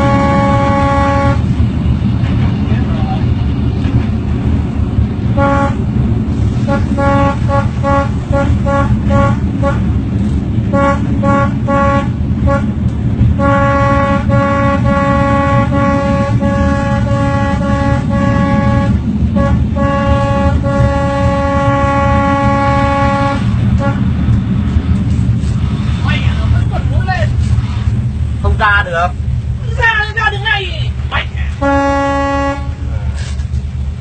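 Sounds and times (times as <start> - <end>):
train horn toots and blasts: 0.0 - 1.7, 5.3 - 24.2, 31.5 - 33.4
low rumble of moving train: 0.0 - 34.0.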